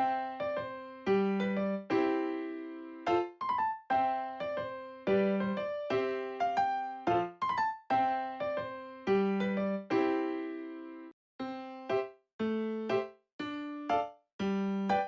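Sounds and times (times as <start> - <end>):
light piano tune: 0.0 - 15.0.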